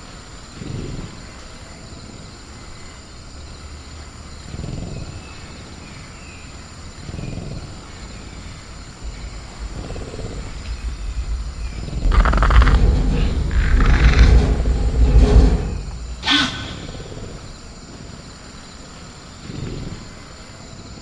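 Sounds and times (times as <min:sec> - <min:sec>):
cricket chorus: 0:00.0 - 0:21.0
low rumble: 0:08.5 - 0:17.6
creature low growls: 0:09.0 - 0:17.4.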